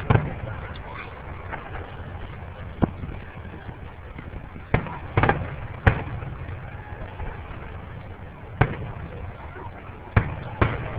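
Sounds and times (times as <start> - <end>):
background noise: 0.0 - 10.9
firework bangs: 0.0 - 10.9
firework crackling: 0.0 - 10.9.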